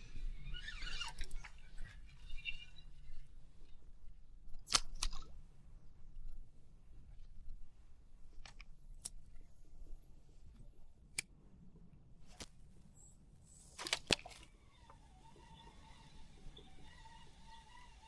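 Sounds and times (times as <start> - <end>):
faint wavering whistle tone: 0.0 - 3.8, 14.6 - 18.0
clicks of handling gear: 8.4 - 9.4, 12.3 - 14.5.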